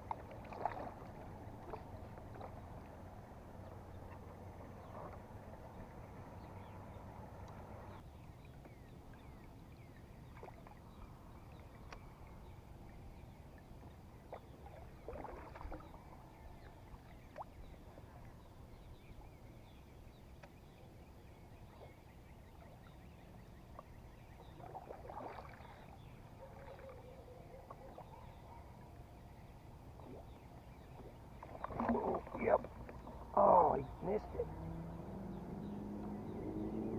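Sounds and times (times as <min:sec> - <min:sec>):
water splashes: 0:00.0 - 0:03.2, 0:08.4 - 0:12.4, 0:13.4 - 0:18.4, 0:23.6 - 0:28.2, 0:30.0 - 0:36.9
water and kayak sounds: 0:00.0 - 0:36.9.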